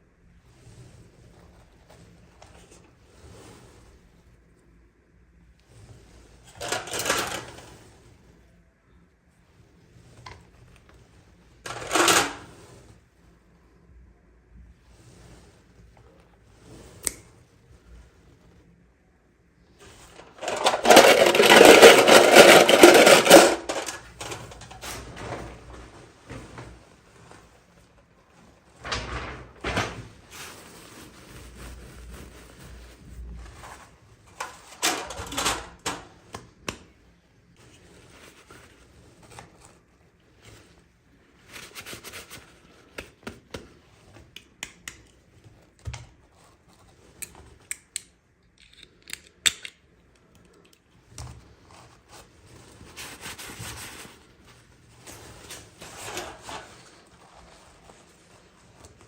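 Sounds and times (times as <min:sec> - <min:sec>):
packaging rustling: 0:20.1 - 0:24.8.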